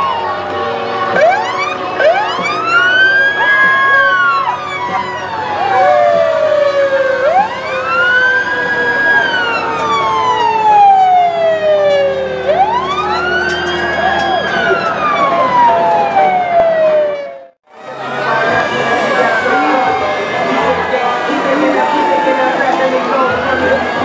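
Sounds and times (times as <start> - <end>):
electronic siren wailing: 0.0 - 24.0
mechanical siren winding up: 12.1 - 17.5.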